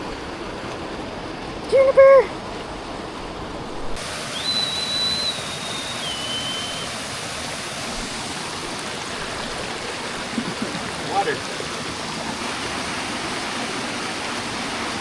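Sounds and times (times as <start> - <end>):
waterfall and stream rushing: 0.0 - 15.0
high whistle: 4.3 - 7.1.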